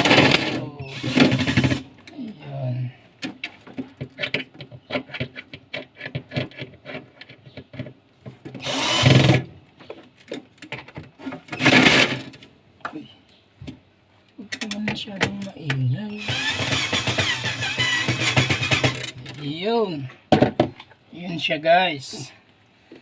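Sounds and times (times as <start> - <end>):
power drill driving screws: 0.0 - 1.8, 8.6 - 9.4, 16.2 - 19.2
parts clicking and rattling: 14.4 - 19.4.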